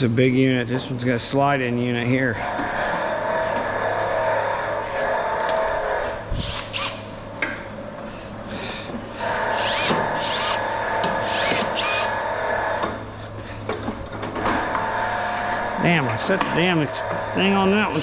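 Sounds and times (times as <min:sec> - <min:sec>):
power drill backing out screws: 0:09.5 - 0:12.1.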